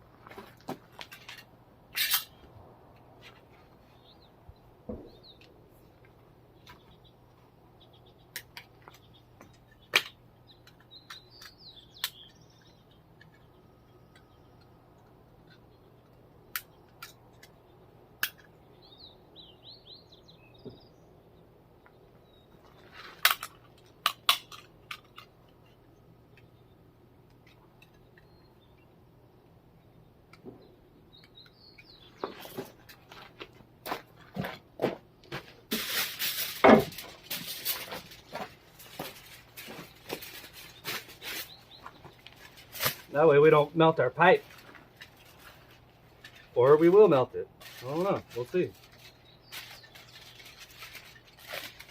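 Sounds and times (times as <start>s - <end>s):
bird chirps: 3.8s - 5.5s, 7.8s - 14.7s, 18.5s - 22.8s, 27.4s - 29.0s, 29.8s - 32.7s, 40.6s - 42.2s.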